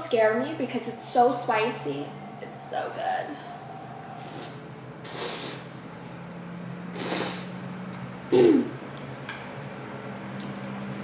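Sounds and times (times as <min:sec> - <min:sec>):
steady low hum: 0:00.0 - 0:11.0
breathy slurping: 0:04.1 - 0:05.8, 0:06.9 - 0:07.6.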